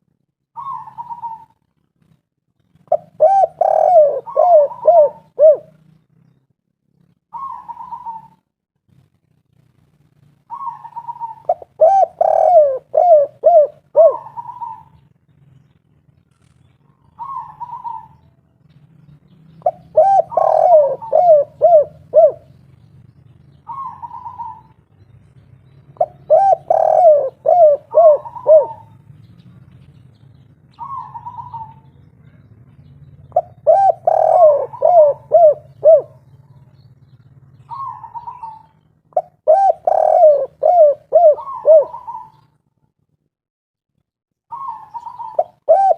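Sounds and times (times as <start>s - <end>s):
dove cooing: 0.6s - 1.6s, 2.8s - 5.9s, 7.3s - 8.4s, 10.4s - 15.0s, 16.9s - 18.3s, 19.6s - 22.6s, 23.6s - 24.8s, 25.9s - 29.0s, 30.7s - 32.6s, 33.2s - 36.8s, 37.6s - 42.6s, 44.5s - 45.9s.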